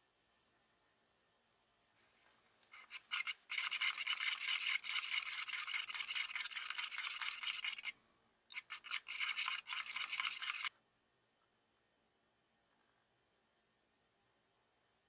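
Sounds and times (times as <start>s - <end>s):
rubbing strokes on hard surface: 2.8s - 7.9s, 8.5s - 10.7s.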